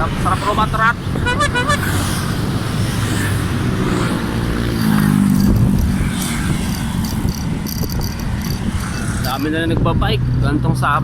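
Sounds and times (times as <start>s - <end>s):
vehicle engine passing: 0.5s - 6.5s.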